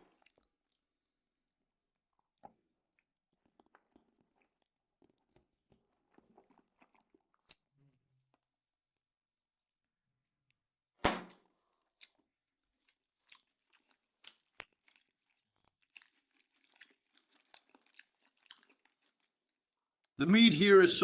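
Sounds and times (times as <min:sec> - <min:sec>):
person chewing food: 0:00.0 - 0:01.0, 0:01.9 - 0:08.5, 0:11.3 - 0:20.2.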